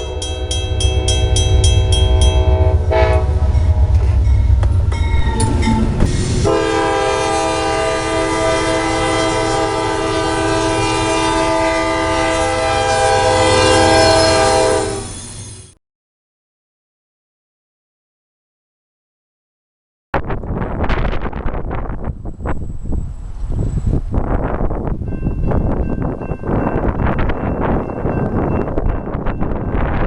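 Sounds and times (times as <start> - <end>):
locomotive air horn: 0.0 - 4.5, 5.4 - 15.2
passing train rumble and clatter: 0.0 - 15.8, 20.2 - 30.0.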